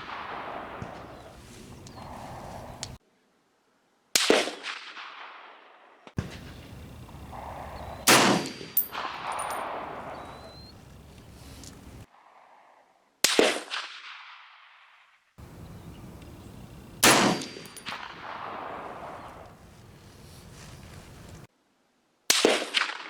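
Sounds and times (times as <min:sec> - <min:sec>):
rifle shots echoing: 0:00.0 - 0:03.0, 0:06.2 - 0:12.0, 0:15.4 - 0:21.5.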